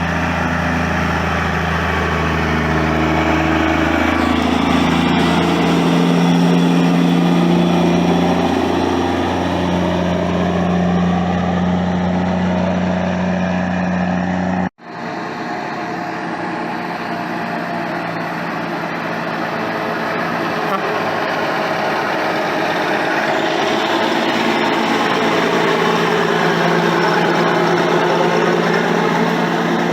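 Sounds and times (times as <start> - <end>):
noisy engine rumble: 0.0 - 29.9
truck engine idling: 0.0 - 29.9.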